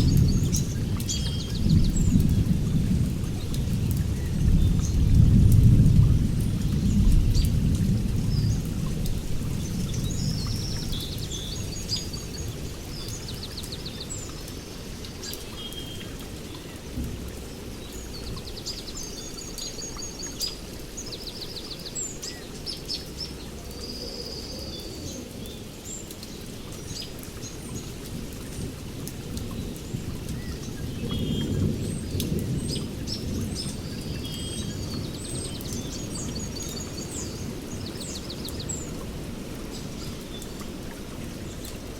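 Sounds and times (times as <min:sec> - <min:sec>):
birds chirping and trilling: 0:00.0 - 0:02.5, 0:29.4 - 0:39.0
thunder rumbling: 0:00.0 - 0:12.7, 0:28.1 - 0:37.8
steady rain: 0:00.0 - 0:41.9.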